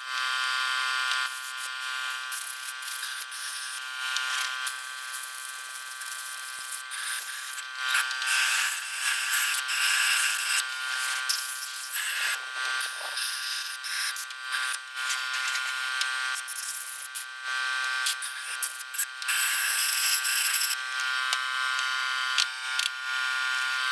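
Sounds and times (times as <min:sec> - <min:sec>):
small electric motor buzzing: 0:00.0 - 0:23.9.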